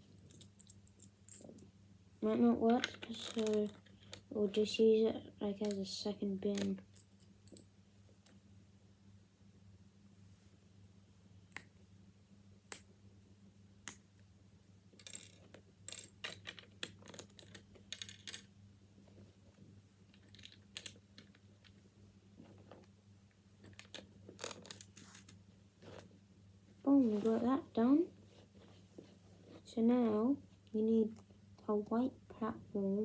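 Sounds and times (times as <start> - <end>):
faint steady hum: 0.0 - 33.0
plastic bricks clicking and rattling: 15.0 - 18.5, 20.1 - 21.8, 23.6 - 25.4.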